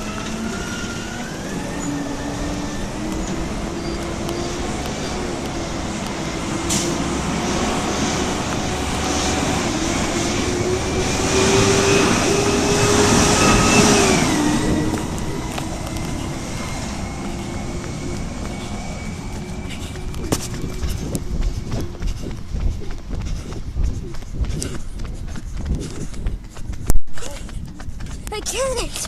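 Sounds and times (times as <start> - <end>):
garbage truck engine whine: 0.0 - 23.1.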